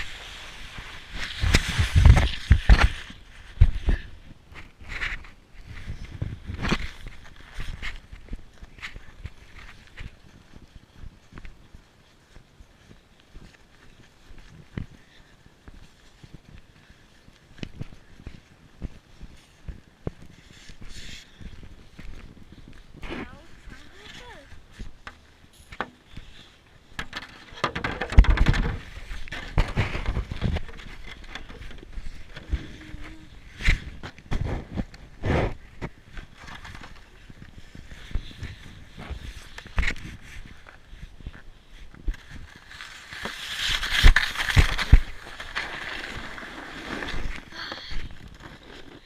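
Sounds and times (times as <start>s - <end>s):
scraping rush over snow: 0.0s - 4.2s, 22.5s - 24.5s, 41.9s - 49.0s
scraping and crunching on snow: 0.0s - 10.4s, 20.3s - 24.8s, 28.8s - 49.0s.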